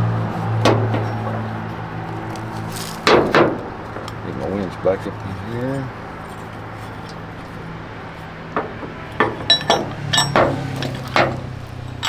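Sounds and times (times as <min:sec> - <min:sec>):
engine hum: 0:00.0 - 0:12.0
metal rigging clinking: 0:00.0 - 0:12.0.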